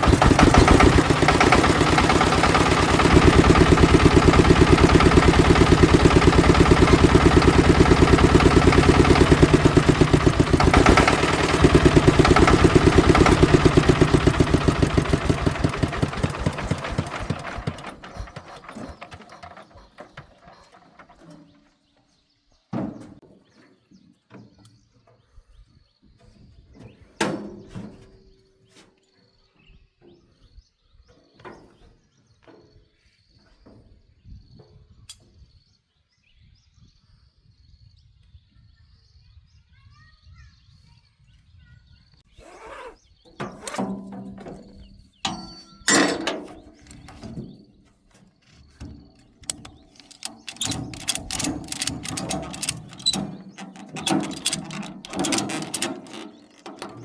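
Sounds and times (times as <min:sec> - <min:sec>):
tractor engine idling: 0:00.0 - 0:20.1, 0:43.4 - 0:57.0.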